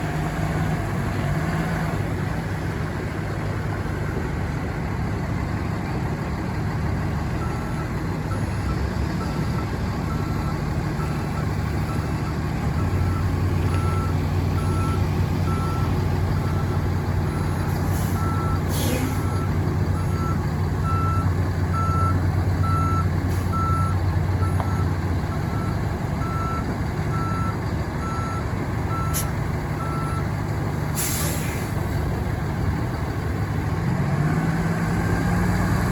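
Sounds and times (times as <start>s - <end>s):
diesel truck engine running: 0.0s - 35.9s
air hiss: 31.0s - 31.8s.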